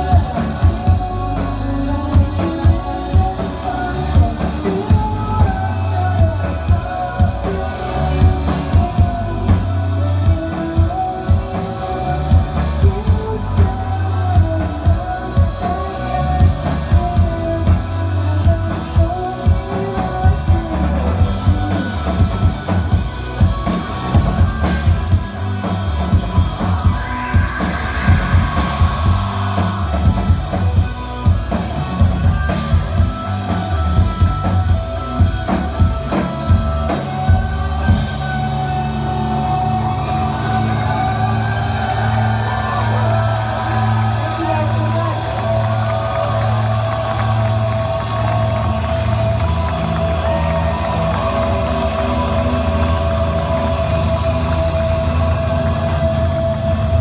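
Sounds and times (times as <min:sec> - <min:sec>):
drum kit beat: 0:00.0 - 0:39.3
melodic lead line: 0:00.0 - 0:56.3
bass guitar: 0:00.0 - 0:57.0
electric guitars: 0:00.0 - 0:57.0.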